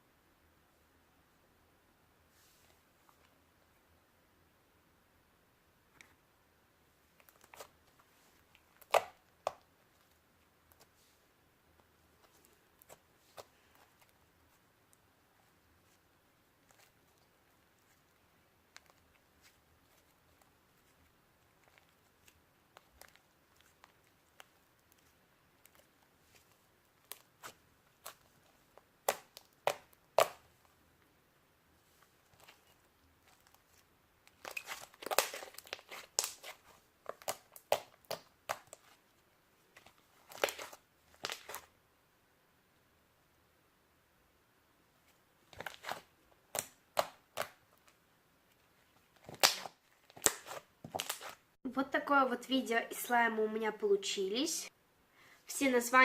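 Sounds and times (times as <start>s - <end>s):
slime popping by hand: 8.8s - 9.6s, 29.0s - 30.4s, 34.4s - 38.8s, 49.2s - 51.3s.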